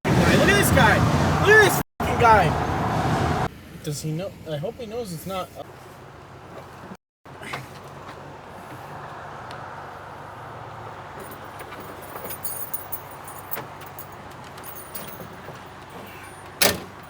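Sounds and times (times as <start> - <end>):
road noise inside vehicle: 0.1 - 17.0
light clicking and rattling: 11.2 - 17.0.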